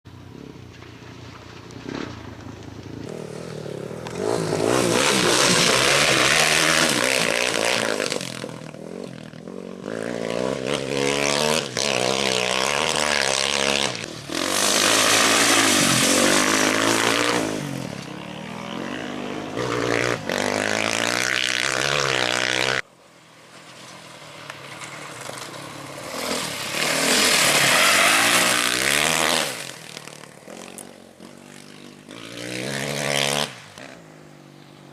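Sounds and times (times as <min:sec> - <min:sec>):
motorcycles and quads revving past: 0:00.1 - 0:22.9, 0:23.6 - 0:34.9.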